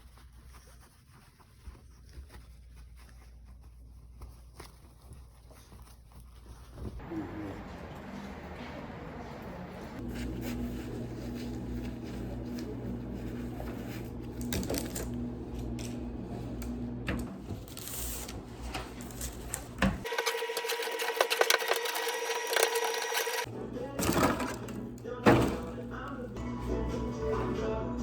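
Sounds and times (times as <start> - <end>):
electric machine hum: 7.0 - 28.0
light background music: 23.5 - 28.0.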